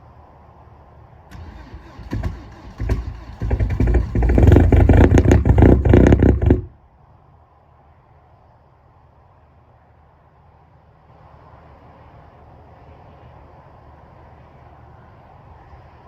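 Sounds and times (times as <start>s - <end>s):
diesel engine clatter: 1.3s - 6.8s
diesel engine cranking and starting: 1.3s - 6.8s.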